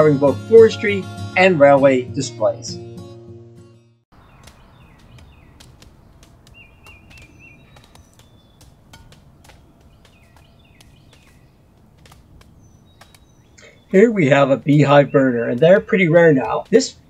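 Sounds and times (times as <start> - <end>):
small birds chirping: 4.1 - 17.0.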